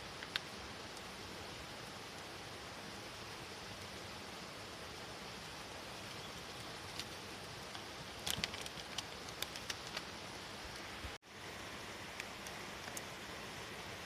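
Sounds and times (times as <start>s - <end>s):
raindrops ticking close by: 0.0s - 1.1s, 5.9s - 11.2s
steady rain: 0.0s - 14.0s.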